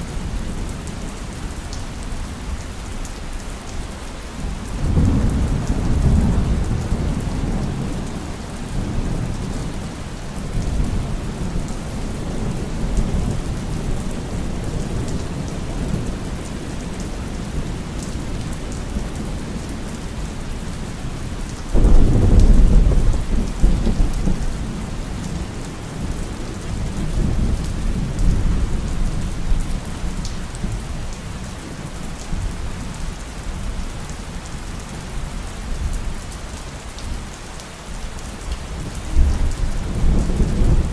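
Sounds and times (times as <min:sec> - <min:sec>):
steady rain falling: 0:00.0 - 0:40.9
sharp thunderclap: 0:21.8 - 0:24.4
thunder rumbling: 0:21.8 - 0:30.8, 0:38.8 - 0:40.9.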